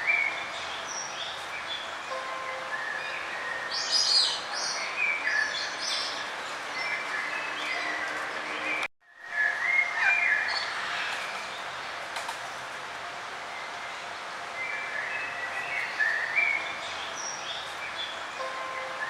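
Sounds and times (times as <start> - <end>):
birds chirping: 0.0 - 12.0, 13.5 - 19.0
steady background hiss: 9.2 - 19.0.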